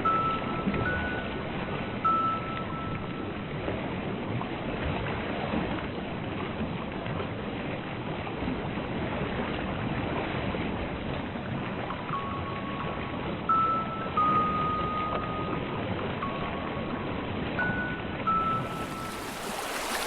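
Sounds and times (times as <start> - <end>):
rushing ocean water: 17.6 - 20.0.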